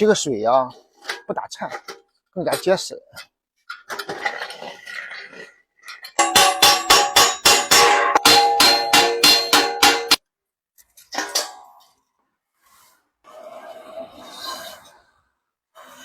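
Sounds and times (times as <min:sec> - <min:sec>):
hammer blows on sheet iron: 0:06.2 - 0:10.2.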